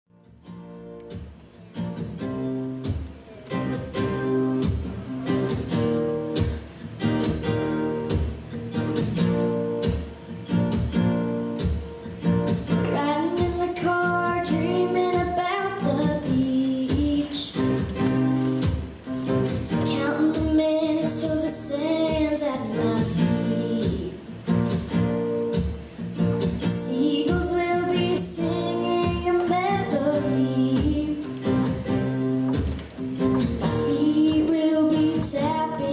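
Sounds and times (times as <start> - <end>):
acoustic guitar song: 0.1 - 35.9
person singing: 19.8 - 24.2, 26.7 - 31.8, 33.6 - 35.9.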